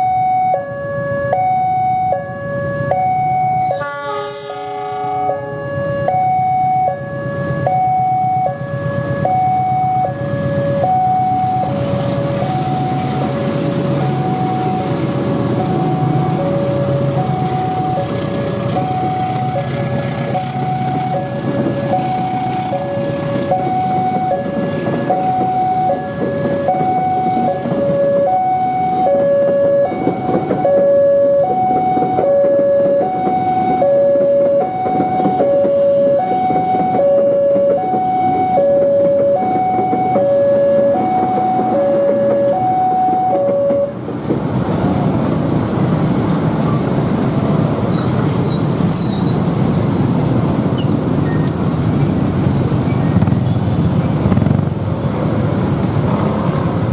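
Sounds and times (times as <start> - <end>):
level crossing two-tone alarm: 0.0 - 3.9, 4.8 - 44.0
traffic rumble: 0.0 - 56.9.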